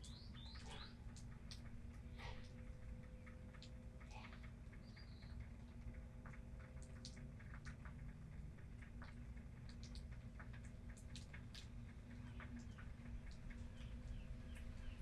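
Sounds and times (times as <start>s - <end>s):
faint hum: 0.0s - 15.0s
rainwater dripping: 0.0s - 15.0s.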